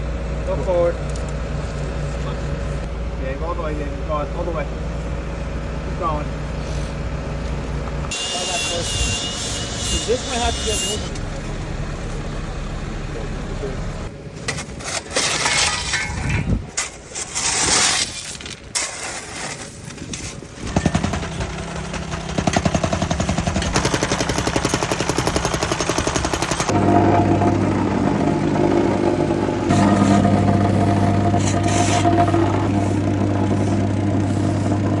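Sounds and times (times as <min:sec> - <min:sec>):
machine engine running: 0:20.6 - 0:35.0.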